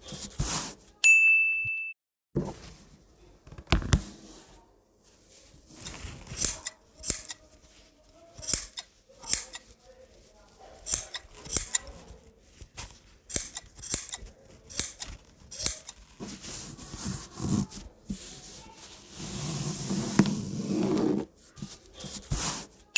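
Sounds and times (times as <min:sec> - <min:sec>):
scissors snipping cloth: 0:05.8 - 0:07.4, 0:08.4 - 0:09.7, 0:10.8 - 0:12.0, 0:13.3 - 0:16.1.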